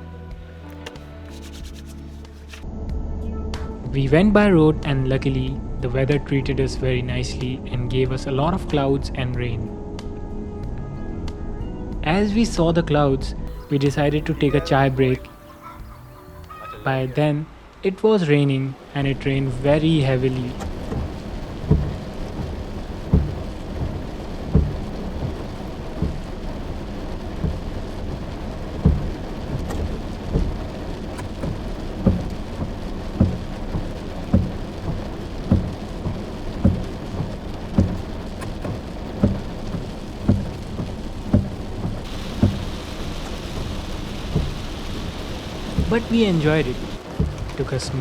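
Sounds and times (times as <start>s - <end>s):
heavy rain falling: 13.5s - 48.0s
short low thuds: 19.0s - 47.8s.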